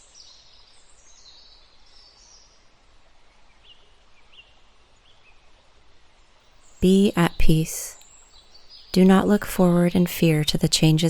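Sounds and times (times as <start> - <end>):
birds chirping: 6.8 - 8.0, 9.0 - 11.0.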